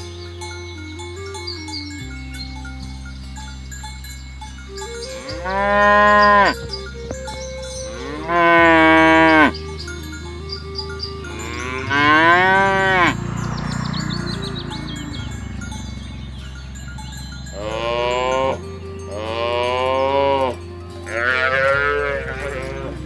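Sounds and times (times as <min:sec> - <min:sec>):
cow mooing: 0:04.8 - 0:06.8, 0:07.4 - 0:16.8, 0:17.5 - 0:23.0.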